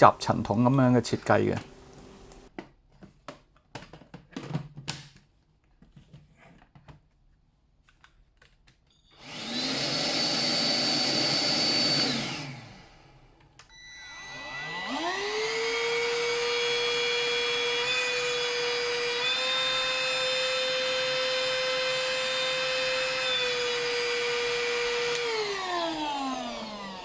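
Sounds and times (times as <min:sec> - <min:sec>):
stick vacuum cleaner whining: 0:09.2 - 0:27.0.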